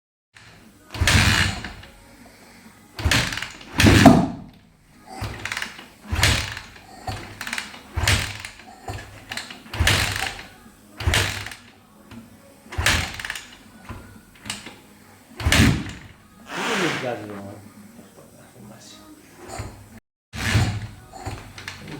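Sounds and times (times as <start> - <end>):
motorcycle engine being cranked: 0.4 - 1.9, 3.0 - 4.1, 5.1 - 11.7, 12.7 - 14.8, 20.4 - 21.9.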